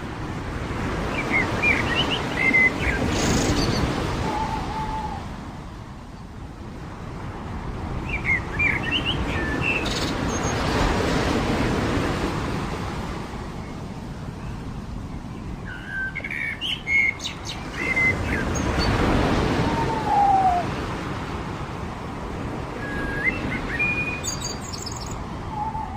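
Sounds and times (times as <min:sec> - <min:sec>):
surf washing on a beach: 0:00.0 - 0:25.9
small birds chirping: 0:15.2 - 0:20.5, 0:23.0 - 0:25.9.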